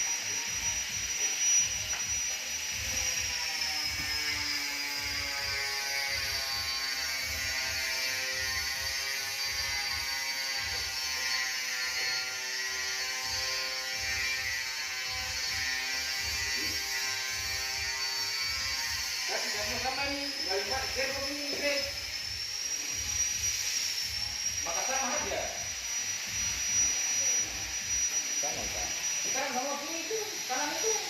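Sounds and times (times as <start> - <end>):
motor running with buzzing hum: 0.0 - 31.0.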